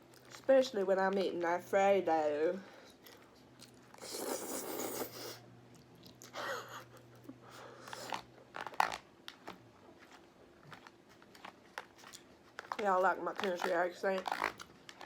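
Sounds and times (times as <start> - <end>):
chewing and mouth noises: 2.9 - 12.8.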